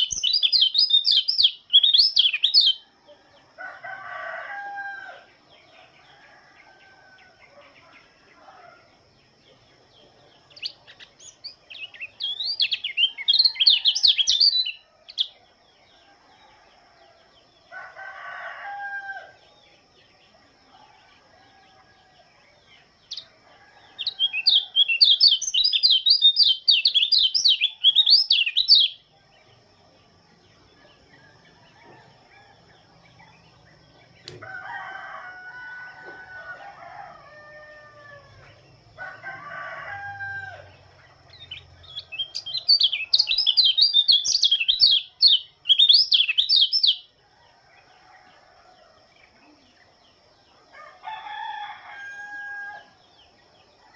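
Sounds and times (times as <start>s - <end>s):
lower-pitched bird calls: 0.0s - 2.8s.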